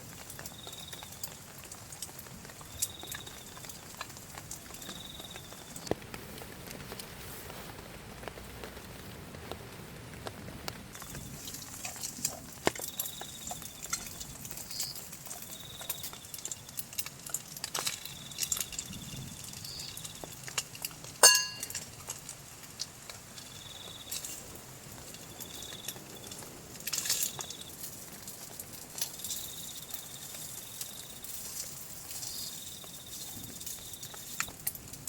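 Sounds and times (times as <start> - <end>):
water dripping: 0.0 - 6.0, 10.9 - 35.0
insect trilling: 2.6 - 3.7, 4.6 - 5.8, 12.8 - 16.8, 29.1 - 34.5
sharp ringing clink: 21.2 - 21.8.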